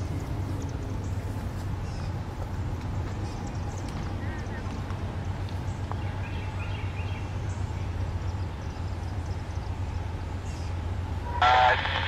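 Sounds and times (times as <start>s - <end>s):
diesel locomotive rumble: 0.0s - 12.0s
scanner radio: 11.2s - 12.0s.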